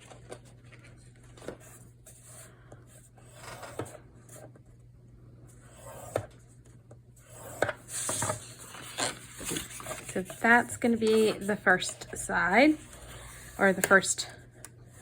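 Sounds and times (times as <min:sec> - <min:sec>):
faint steady hum: 0:00.0 - 0:15.0
paper scraping: 0:07.3 - 0:14.0.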